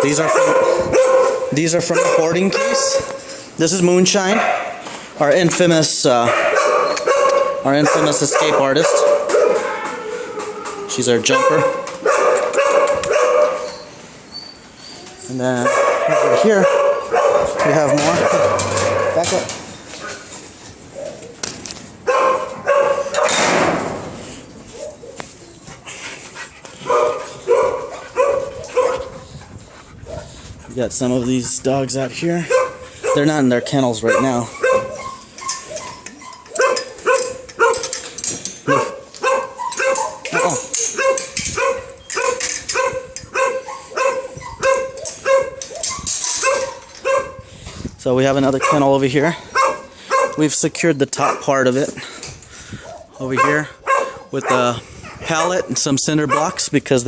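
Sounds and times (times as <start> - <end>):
dog barking: 0.0 - 3.2, 4.2 - 4.8, 6.2 - 9.7, 11.3 - 13.7, 15.6 - 20.2, 22.0 - 23.4, 26.8 - 29.2, 32.5 - 37.9, 38.7 - 47.5, 48.6 - 48.9, 49.5 - 50.4, 52.8 - 55.7, 56.3 - 56.6.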